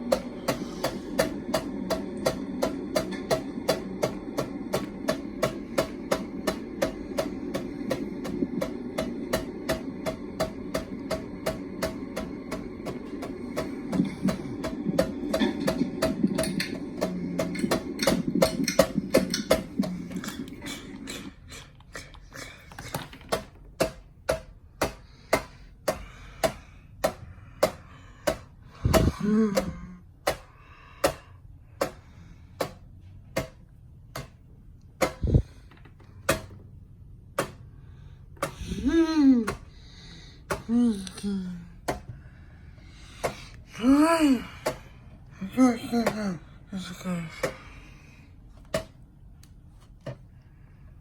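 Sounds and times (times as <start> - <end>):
ceiling fan ticking: 0.0 - 20.4
low whirring hum: 0.0 - 51.0.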